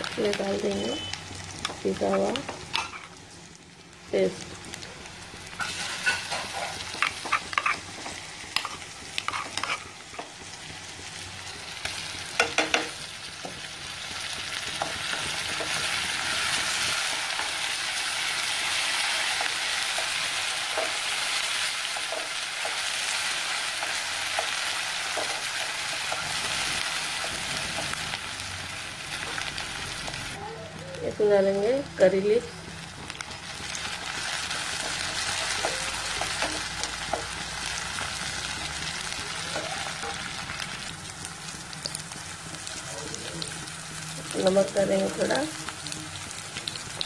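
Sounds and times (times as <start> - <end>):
food sizzling in oil: 0.0 - 47.0
spatula scraping metal pan: 5.6 - 9.9.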